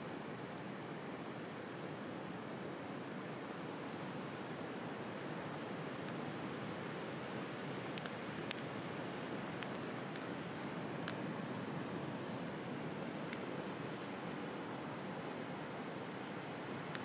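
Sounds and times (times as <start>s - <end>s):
wood fire crackling: 9.3s - 13.6s.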